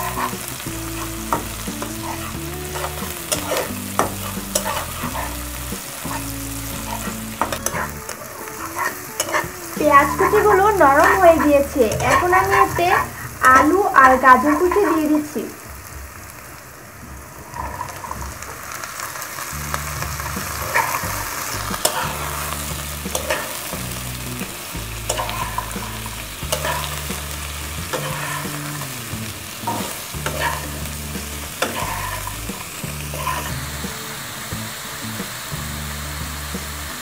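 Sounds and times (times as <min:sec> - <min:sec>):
metal spatula scraping pan: 0:00.0 - 0:15.1, 0:20.2 - 0:23.9, 0:25.0 - 0:29.0, 0:29.6 - 0:33.6
vegetables sizzling in oil: 0:00.0 - 0:37.0.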